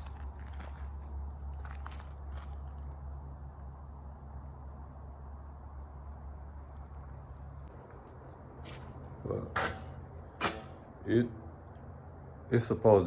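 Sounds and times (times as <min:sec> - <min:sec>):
insects chirping: 0:00.0 - 0:13.0
faint footsteps: 0:07.7 - 0:11.0.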